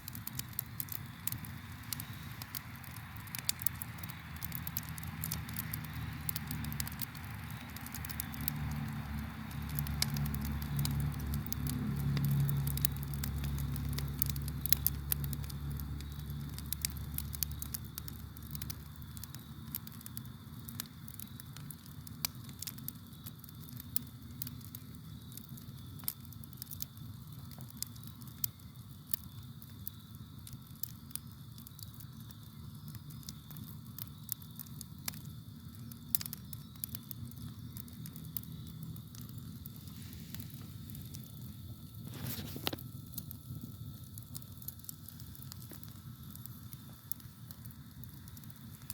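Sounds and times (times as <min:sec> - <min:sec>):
campfire crackling and popping: 0:00.0 - 0:48.9
crickets chirping: 0:00.1 - 0:48.9.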